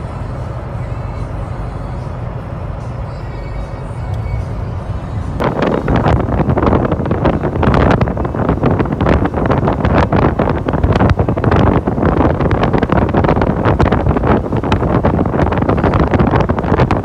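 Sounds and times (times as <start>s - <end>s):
wind buffeting microphone: 5.1s - 17.0s.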